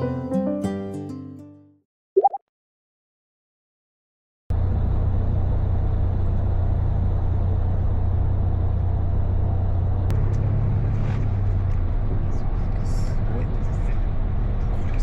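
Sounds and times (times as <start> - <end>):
vehicle rumble and hum: 4.5 - 15.0.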